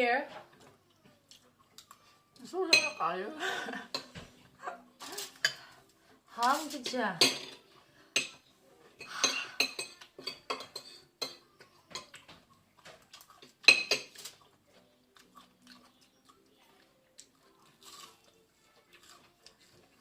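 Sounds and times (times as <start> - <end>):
cutlery clinking on plates: 1.7 - 3.0, 3.9 - 4.4, 6.4 - 14.5.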